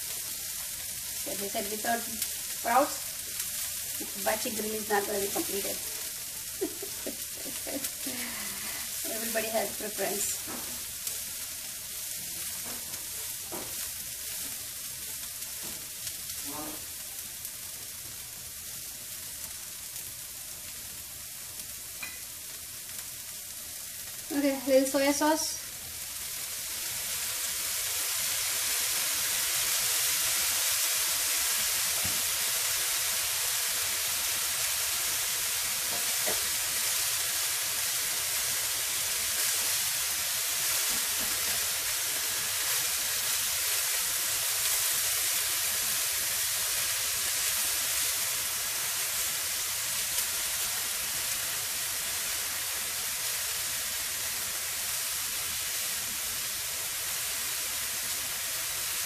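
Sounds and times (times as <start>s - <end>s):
bean sprouts sizzling in frying pan: 0.0s - 59.0s.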